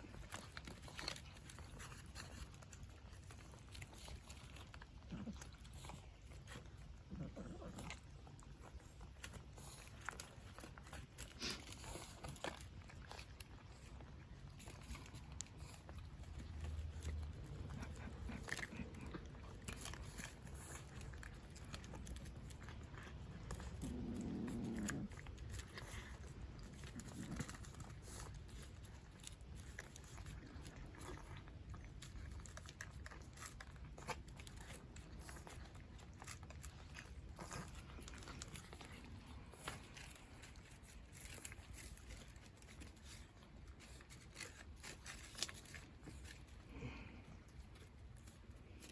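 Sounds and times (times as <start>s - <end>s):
cats crunching food: 0.0s - 48.9s.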